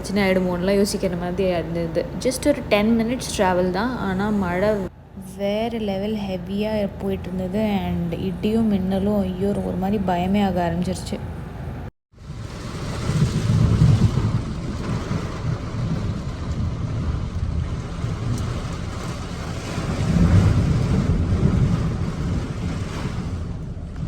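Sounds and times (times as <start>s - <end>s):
wind buffeting microphone: 0.0s - 24.0s
deep thunder rumbles: 12.2s - 24.0s
heavy rain: 12.2s - 24.0s.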